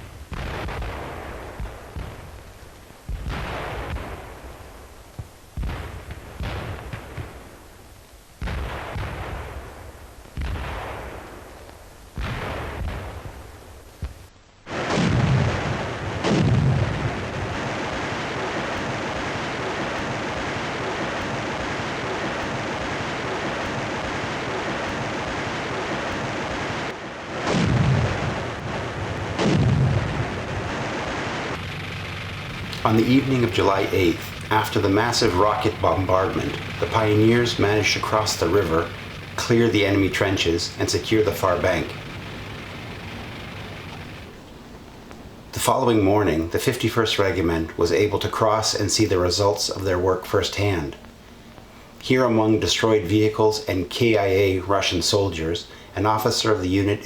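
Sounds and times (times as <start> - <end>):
rocket blasts: 0.0 - 4.9, 5.6 - 7.7, 8.4 - 13.8, 14.7 - 46.5
heavy booms: 14.7 - 46.2
steady hiss: 30.7 - 57.0.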